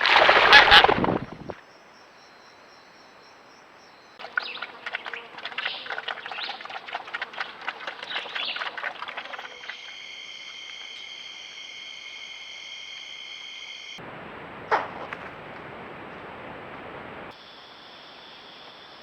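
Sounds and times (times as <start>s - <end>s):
birds chattering chirps: 2.2s - 11.1s
high insect buzz: 4.2s - 6.6s.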